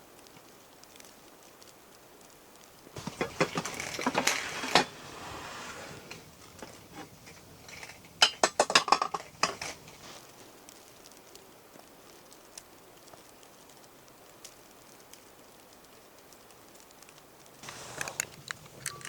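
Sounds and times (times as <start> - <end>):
metal cookware clinking: 3.0 - 10.0.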